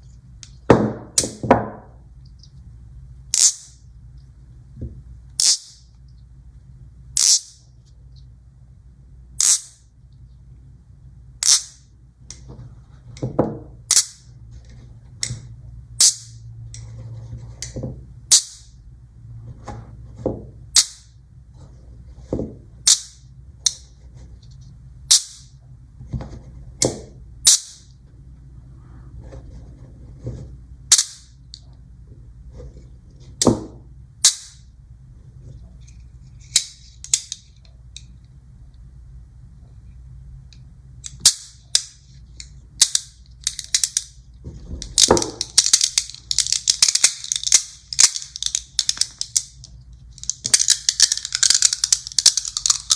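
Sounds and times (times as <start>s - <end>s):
magnet balls snapping together: 3.3s - 3.8s, 5.4s - 5.8s, 7.2s - 7.6s, 9.4s - 9.8s, 11.4s - 12.4s, 13.9s - 14.3s, 16.0s - 16.4s, 18.3s - 18.7s, 20.7s - 21.1s, 22.8s - 23.8s, 25.1s - 25.5s, 26.8s - 27.9s, 30.9s - 31.6s, 34.2s - 34.7s, 36.4s - 38.1s, 41.0s - 52.9s
magnet balls rolling and scraping: 28.7s - 38.3s, 39.7s - 52.9s.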